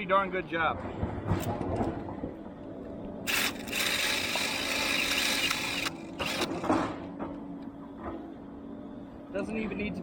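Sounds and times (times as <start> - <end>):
drill running: 3.3 - 6.6.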